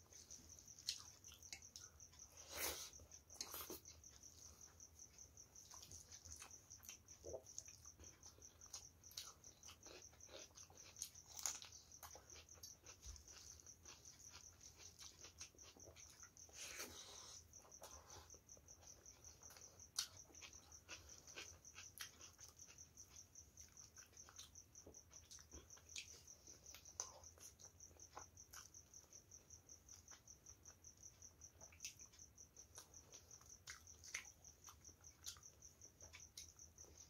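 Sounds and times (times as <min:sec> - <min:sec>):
chewing: 0:00.0 - 0:37.0.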